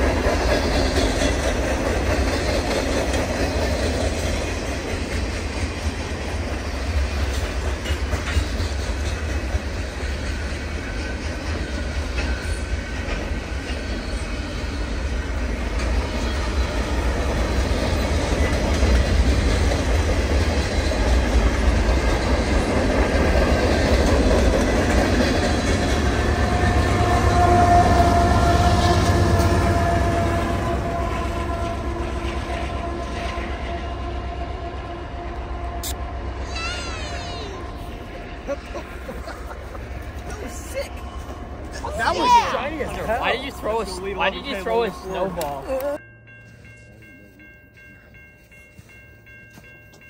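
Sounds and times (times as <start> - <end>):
freight train wheels clacking: 0.0 - 34.4.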